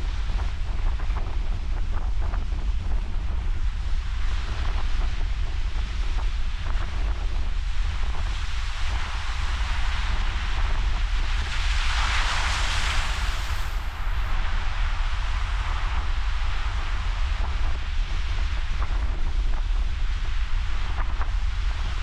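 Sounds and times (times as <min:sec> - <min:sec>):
wind buffeting microphone: 0:00.0 - 0:22.0
wave breaking and washing in: 0:12.4 - 0:14.3.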